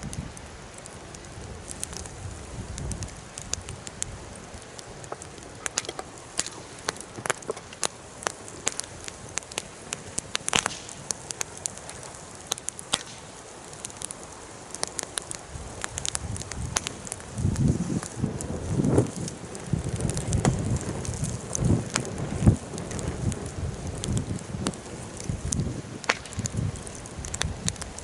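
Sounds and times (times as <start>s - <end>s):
steady low hiss: 0.0s - 28.0s
wood fire crackling: 0.0s - 28.0s.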